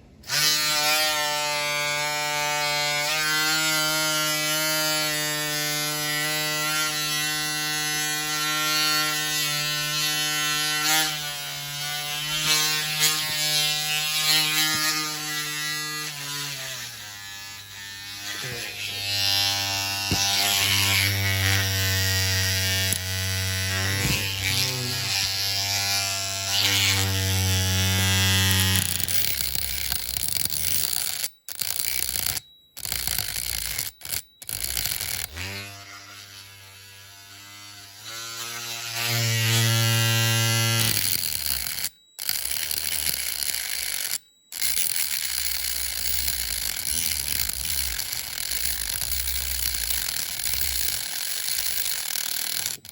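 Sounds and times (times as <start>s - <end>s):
rotary tool motor humming: 0.2s - 52.9s
tool scraping on metal: 8.6s - 36.1s, 39.0s - 52.9s.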